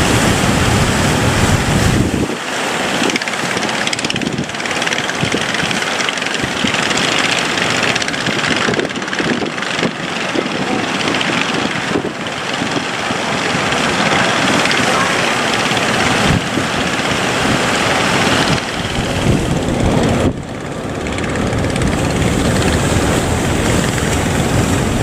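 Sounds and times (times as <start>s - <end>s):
boat engine running: 0.0s - 25.0s
heavy low rumble: 0.0s - 25.0s
loud rushing noise: 0.0s - 25.0s.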